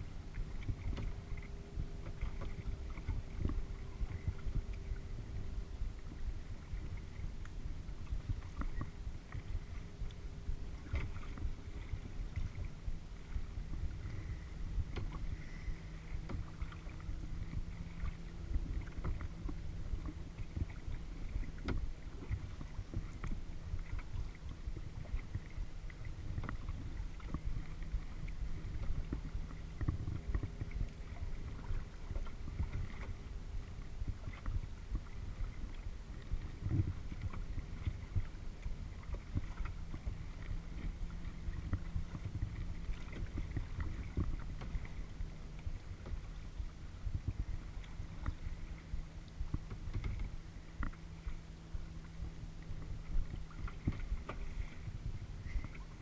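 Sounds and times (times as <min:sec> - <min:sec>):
steady low rumble: 0:00.0 - 0:56.0
water splashing against hull: 0:00.0 - 0:56.0.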